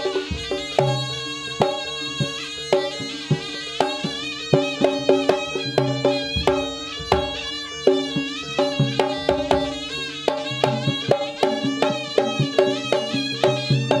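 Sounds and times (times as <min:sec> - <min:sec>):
drum strokes: 0:00.0 - 0:14.0
wavering high melody: 0:00.0 - 0:14.0.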